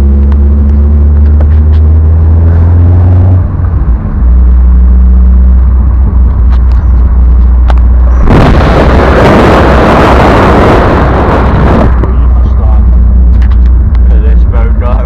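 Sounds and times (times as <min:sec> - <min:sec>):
car engine roaring: 0:00.0 - 0:15.0
exhaust pops: 0:06.0 - 0:14.4.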